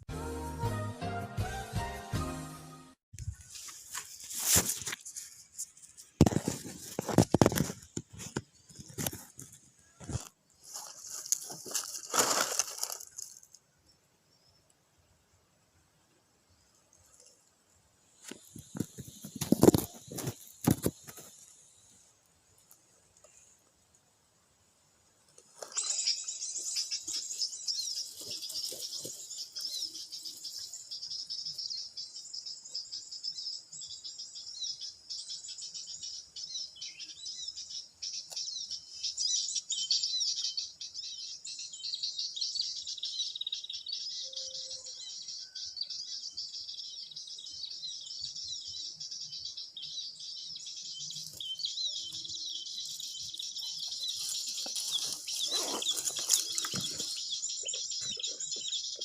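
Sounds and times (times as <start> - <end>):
small birds twittering: 25.5 - 59.0.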